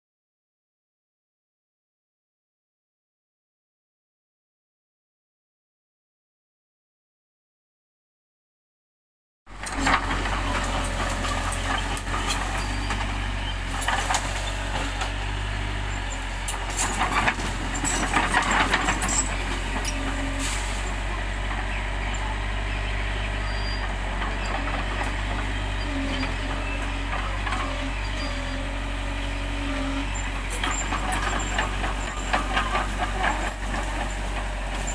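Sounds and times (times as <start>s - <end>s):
bulldozer diesel engine running: 9.5s - 34.9s
metallic clanks and rattles: 16.0s - 21.1s, 30.4s - 34.9s.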